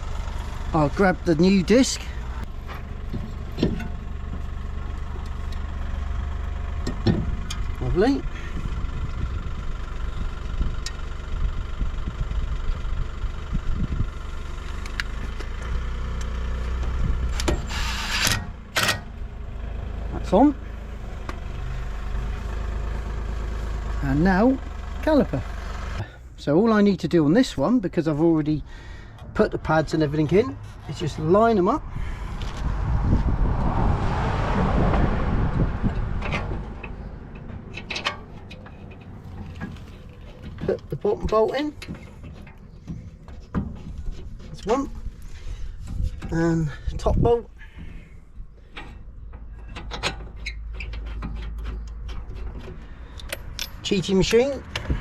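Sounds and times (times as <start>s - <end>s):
low engine-like drone: 0.0s - 46.8s
vehicle passing by: 28.6s - 41.4s.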